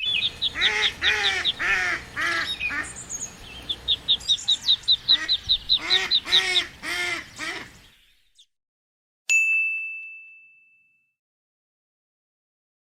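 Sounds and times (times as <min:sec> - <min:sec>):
high peeping: 0:00.0 - 0:08.0
ducks quacking: 0:00.2 - 0:07.9
bell-like ding: 0:09.3 - 0:11.2.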